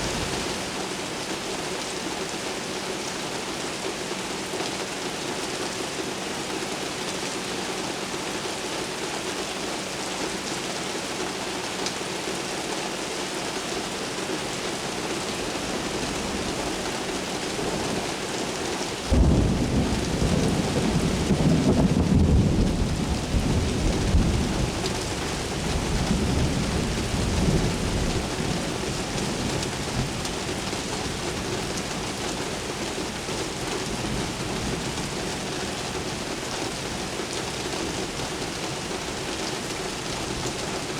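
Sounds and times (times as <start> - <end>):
heavy rain: 0.0 - 40.9
thunderclap rumbling: 19.1 - 28.6.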